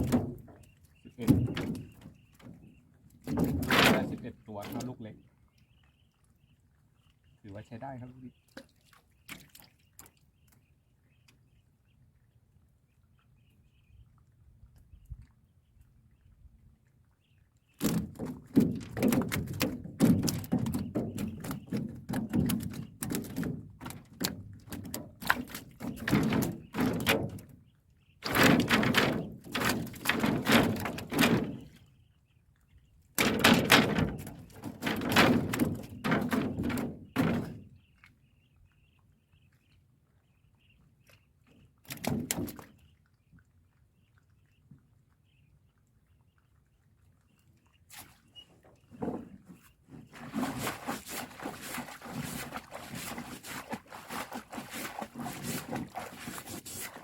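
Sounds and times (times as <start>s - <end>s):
fish thrashing against boat: 1.2s - 2.6s, 3.2s - 4.9s, 17.8s - 27.5s, 28.2s - 31.8s, 33.2s - 37.7s, 49.0s - 57.0s.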